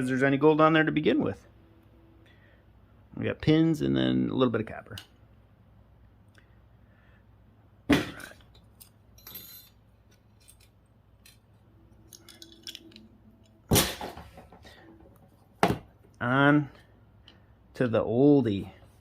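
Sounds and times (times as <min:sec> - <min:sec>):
tools tapping and rattling: 0:07.9 - 0:16.2
metal parts clinking: 0:08.2 - 0:13.7.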